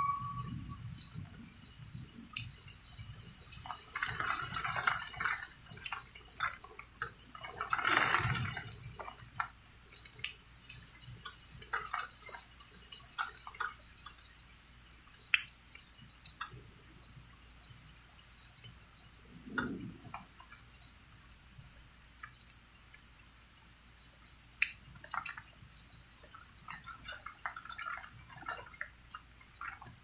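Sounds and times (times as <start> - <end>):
rainwater dripping and splashing: 0.0 - 30.0.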